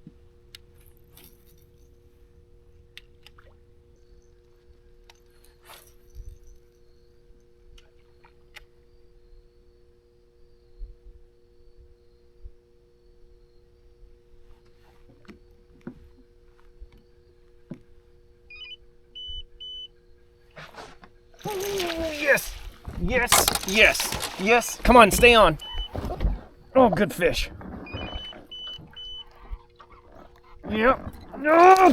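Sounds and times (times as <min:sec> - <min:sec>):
short electronic beeps: 0:27.9 - 0:29.3.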